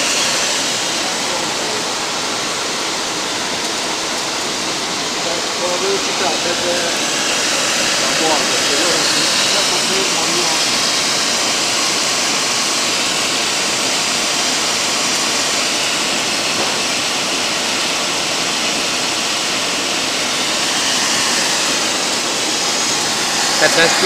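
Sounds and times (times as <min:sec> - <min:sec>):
grinding machine hissing: 0:00.0 - 0:24.0.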